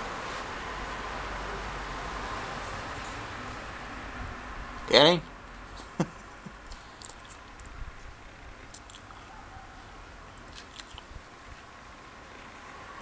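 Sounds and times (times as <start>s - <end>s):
wafer biscuit crunching: 6.6s - 7.8s, 8.6s - 9.3s, 10.4s - 11.7s.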